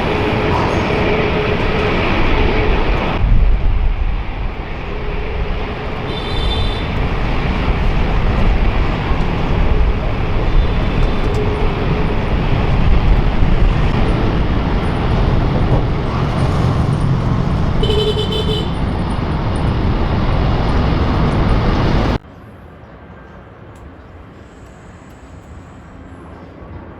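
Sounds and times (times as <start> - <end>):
jet engines roaring: 0.0 - 22.2
horn toots: 5.8 - 22.2.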